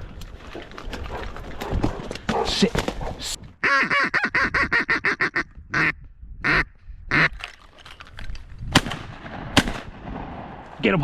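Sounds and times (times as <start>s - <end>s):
duck quacking: 3.6s - 7.3s.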